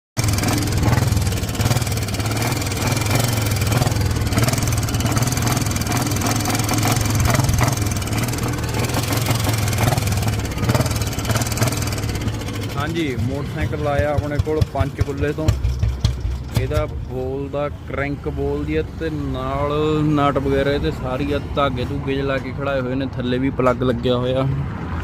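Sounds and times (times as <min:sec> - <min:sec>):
motorcycle engine idling: 0:00.2 - 0:17.9.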